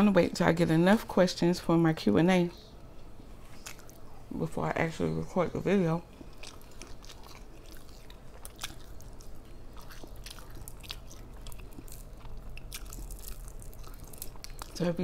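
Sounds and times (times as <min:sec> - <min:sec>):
chewing and crunching fried fish: 0:03.6 - 0:04.0, 0:06.1 - 0:15.0.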